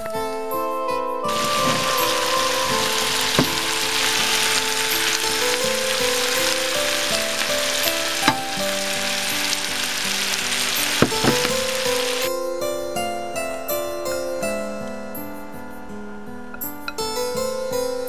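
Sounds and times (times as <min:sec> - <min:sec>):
soft background music: 0:00.0 - 0:18.0
food sizzling in a pan: 0:01.3 - 0:12.3.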